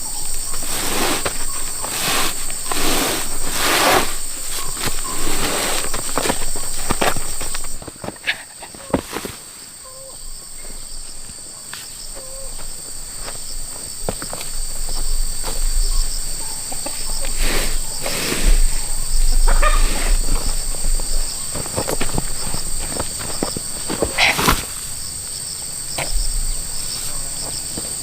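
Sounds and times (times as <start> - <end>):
rustling: 0.0 - 9.8, 10.7 - 25.3
insects chorus: 0.0 - 28.0
knocks and scrapes: 0.4 - 9.5, 13.2 - 24.9.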